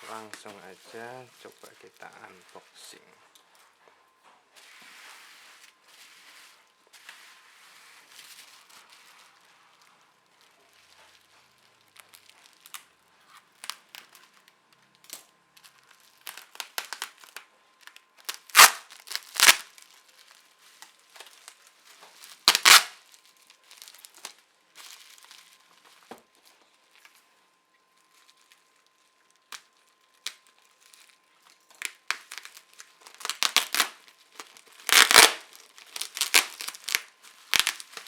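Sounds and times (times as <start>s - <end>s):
packaging crinkling: 0.0s - 3.6s, 4.6s - 27.3s, 28.0s - 38.0s
packaging ripping: 5.6s - 26.1s, 28.1s - 38.0s.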